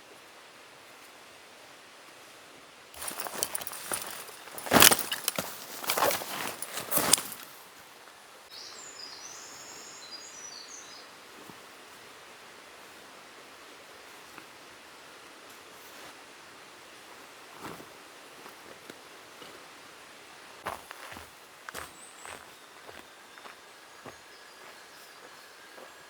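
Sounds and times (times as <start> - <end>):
steady background hiss: 0.0 - 26.0
footsteps crunching on forest floor: 3.0 - 7.6, 20.6 - 26.0
bird singing: 8.5 - 11.1, 21.8 - 26.0.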